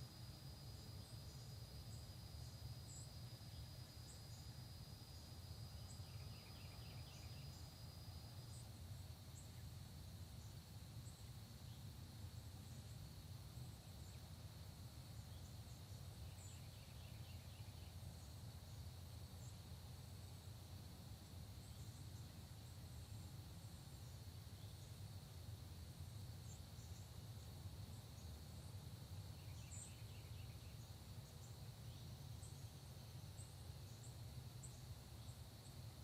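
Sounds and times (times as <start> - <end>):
insects droning: 0.0 - 36.0
low steady hum: 0.0 - 36.0
faint bird chirps: 0.1 - 9.7, 29.3 - 36.0.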